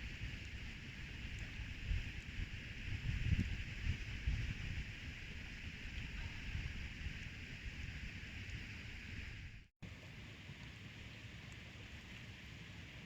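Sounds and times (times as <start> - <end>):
wind buffeting microphone: 0.0 - 8.3
steady outdoor hiss: 0.0 - 13.0.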